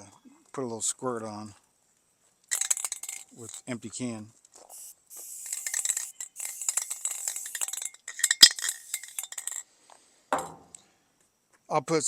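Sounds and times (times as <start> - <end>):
spray can ball rattling: 2.5 - 3.8, 4.7 - 9.6.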